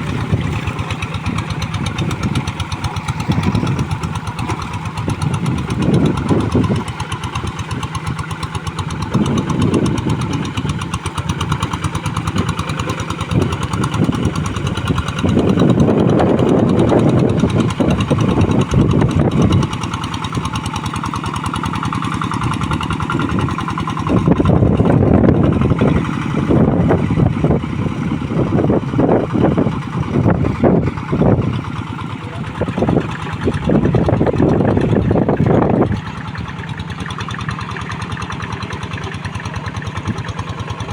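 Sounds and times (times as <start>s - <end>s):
diesel engine chugging under load: 0.0s - 40.9s.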